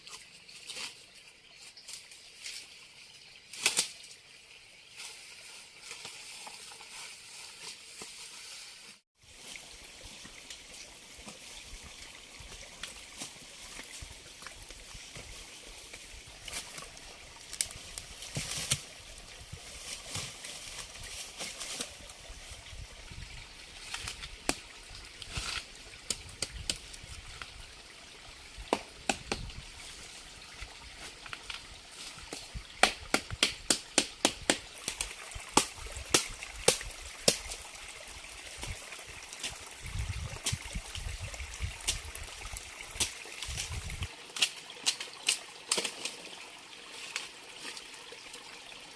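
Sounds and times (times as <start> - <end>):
water trickling: 34.8 - 48.9.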